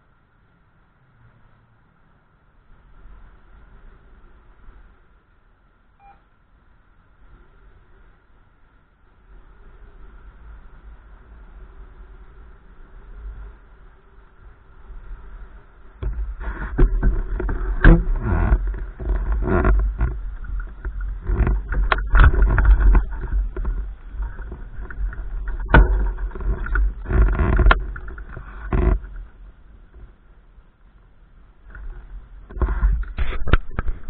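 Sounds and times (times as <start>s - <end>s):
wind buffeting microphone: 9.2s - 30.2s.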